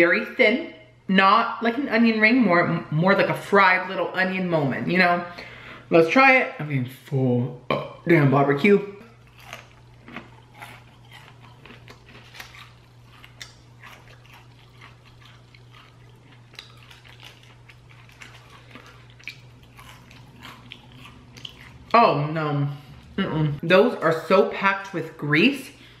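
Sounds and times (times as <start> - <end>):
steady low hum: 0.0 - 26.0
person crunching fried food: 9.2 - 21.9.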